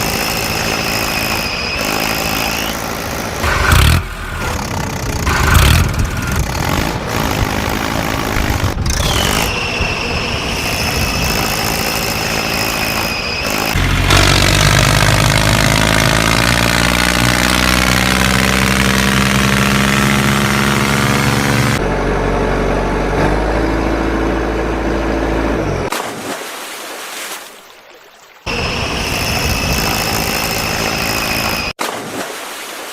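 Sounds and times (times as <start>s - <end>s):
high engine whine: 0.0s - 25.9s, 28.5s - 31.8s
low engine drone: 0.0s - 25.9s.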